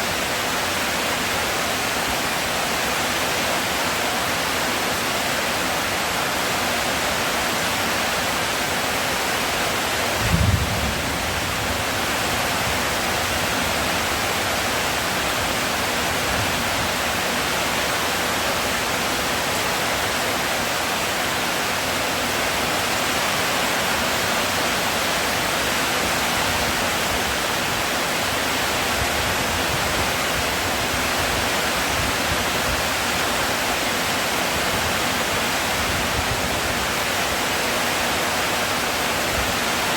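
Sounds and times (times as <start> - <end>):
heavy rain hissing: 0.0 - 39.9
dull low thump: 10.2 - 12.8.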